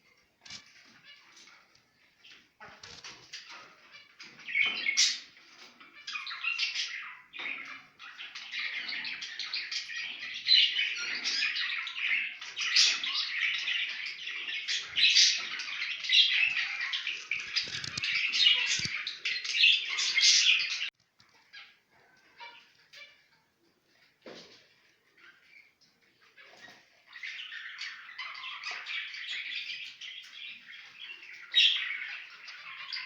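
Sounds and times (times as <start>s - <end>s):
finches chirping: 0.4s - 23.2s.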